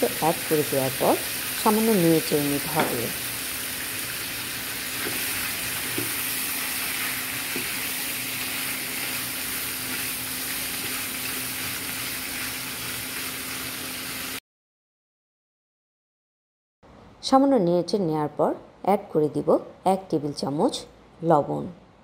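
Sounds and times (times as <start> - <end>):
chicken sizzling in a pan: 0.0 - 14.4.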